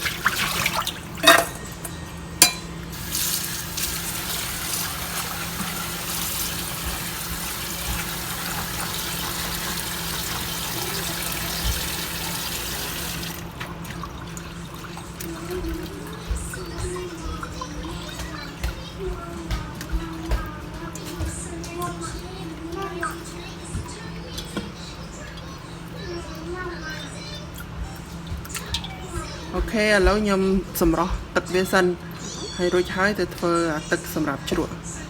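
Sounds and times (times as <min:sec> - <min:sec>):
water running: 0:00.0 - 0:35.0.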